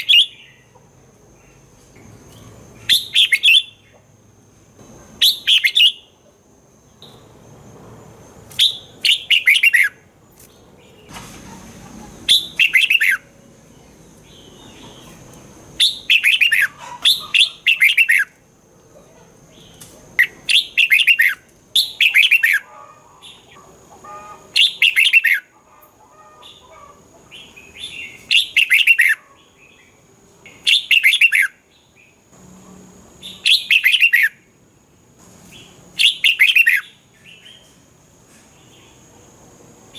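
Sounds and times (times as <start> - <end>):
bulbul singing: 0.0 - 0.8, 2.3 - 4.0, 5.2 - 6.2, 8.5 - 11.1, 12.2 - 18.4, 19.5 - 25.5, 27.3 - 32.2, 33.2 - 34.5, 35.6 - 37.8.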